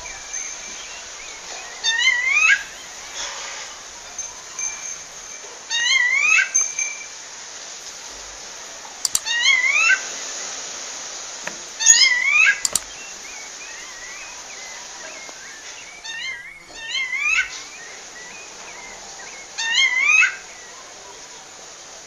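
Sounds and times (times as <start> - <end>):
thrush calling: 0.0 - 7.4, 8.4 - 22.0
sharp clicks: 9.0 - 9.3, 12.6 - 13.0.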